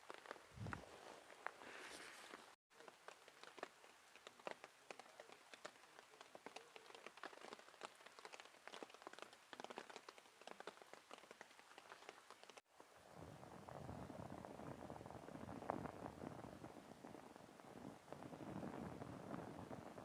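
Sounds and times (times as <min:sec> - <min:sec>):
raindrops ticking on a tarp: 0:00.0 - 0:20.0
soft rain hiss: 0:00.0 - 0:20.0.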